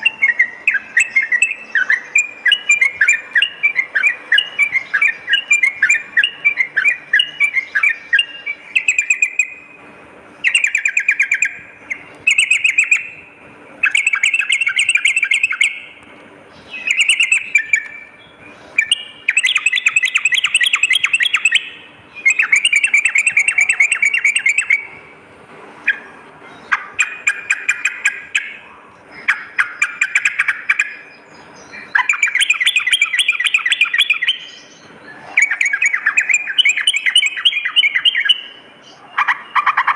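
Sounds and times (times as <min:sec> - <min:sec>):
bulbul chattering song: 0:00.0 - 0:39.9.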